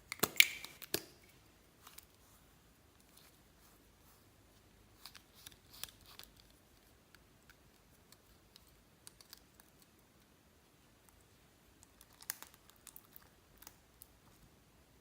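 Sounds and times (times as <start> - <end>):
slime clicking and popping: 0.1 - 1.1.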